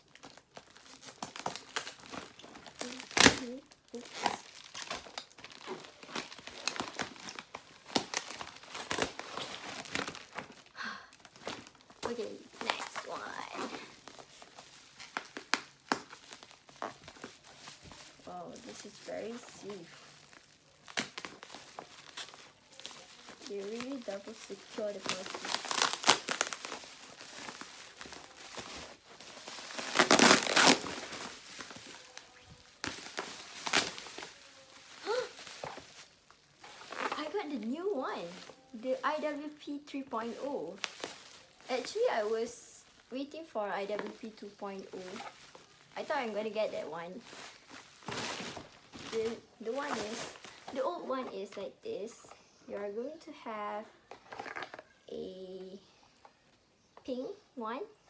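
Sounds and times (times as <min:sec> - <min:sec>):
packaging tearing: 0:00.0 - 0:37.4, 0:54.1 - 0:55.0
packaging crinkling and rustling: 0:00.0 - 0:52.6, 0:53.8 - 0:55.1.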